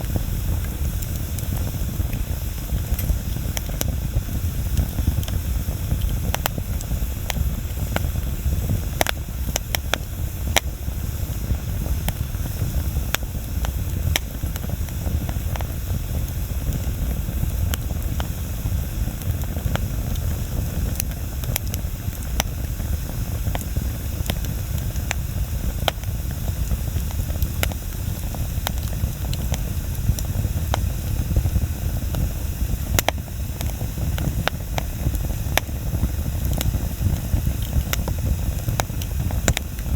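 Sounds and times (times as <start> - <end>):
flame rushing: 0.0 - 39.9
wood crackling and popping: 0.0 - 39.9.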